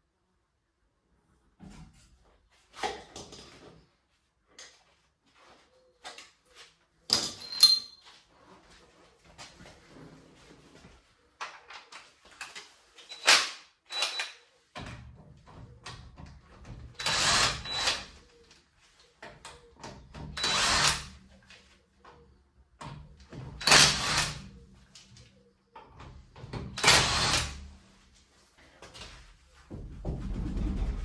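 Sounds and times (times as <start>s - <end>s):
power tool running: 26.8s - 27.6s.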